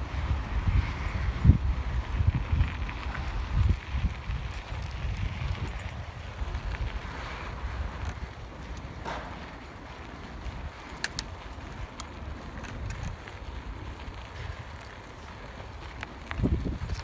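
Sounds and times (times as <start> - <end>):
bicycle tyre noise: 0.0 - 17.0
wind rumbling on microphone: 0.0 - 17.0
sharp ticks and rattles: 2.2 - 7.2.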